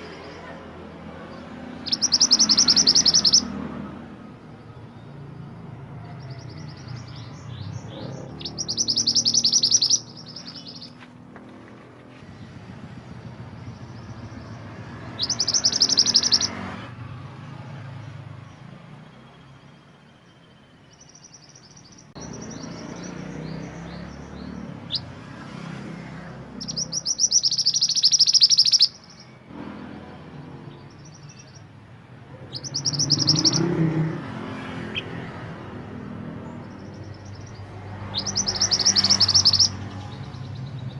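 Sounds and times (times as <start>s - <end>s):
songbird trilled chirps: 1.2s - 3.7s, 4.5s - 11.1s, 13.5s - 16.6s, 18.5s - 25.2s, 26.5s - 29.4s, 30.6s - 31.8s, 32.4s - 34.2s, 36.4s - 40.9s.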